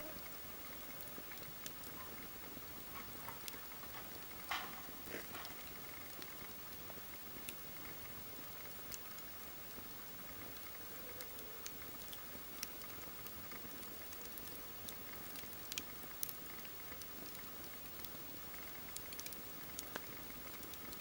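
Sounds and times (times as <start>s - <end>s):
soft hiss of flames: 0.0s - 21.0s
campfire pops and snaps: 1.4s - 8.1s, 11.3s - 21.0s.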